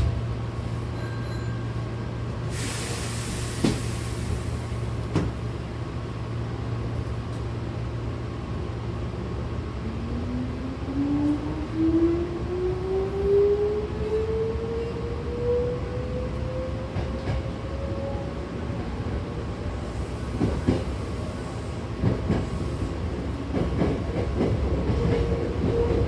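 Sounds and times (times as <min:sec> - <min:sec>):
train car low hum: 0:00.0 - 0:26.0
air hiss: 0:02.5 - 0:05.0.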